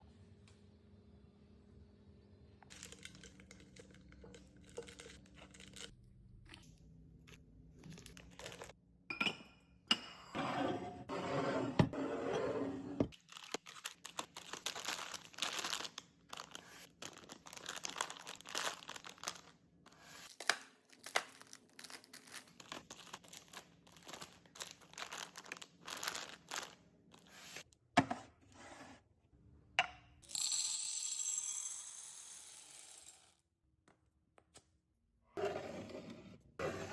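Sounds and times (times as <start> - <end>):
plastic packaging crinkling: 2.7 - 5.9, 7.8 - 8.8, 13.2 - 19.5, 20.3 - 27.3.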